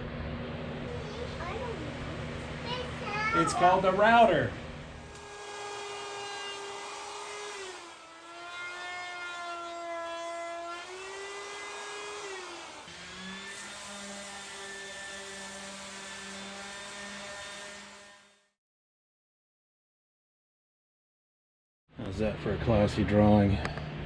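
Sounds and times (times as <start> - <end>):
low hum: 0.0 - 3.2
wood router whining: 5.0 - 18.5.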